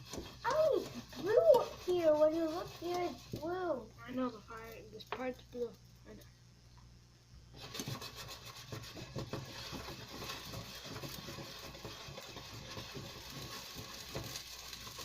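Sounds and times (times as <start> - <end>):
food sizzling in hot oil: 0.0 - 3.5, 7.6 - 15.0.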